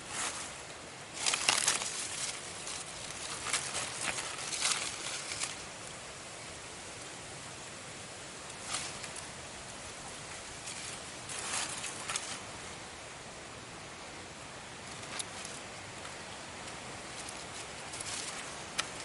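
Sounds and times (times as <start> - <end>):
leaf litter rustling: 0.0 - 7.1, 8.0 - 12.9, 14.6 - 19.0
outdoor hiss: 0.0 - 19.0.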